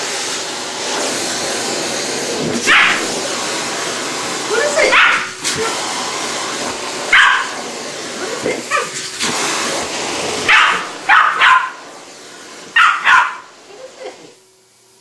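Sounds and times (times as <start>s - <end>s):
vacuum cleaner running: 0.0s - 15.0s
dog barking: 2.7s - 3.1s, 4.9s - 5.4s, 7.1s - 7.6s, 10.5s - 11.8s, 12.8s - 13.5s.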